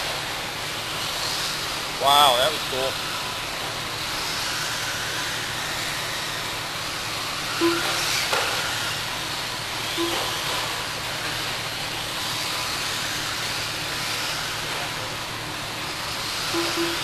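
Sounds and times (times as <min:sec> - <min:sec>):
steady hissing noise: 0:00.0 - 0:17.0
short low beeps: 0:07.6 - 0:08.0, 0:10.0 - 0:10.3, 0:16.6 - 0:17.0.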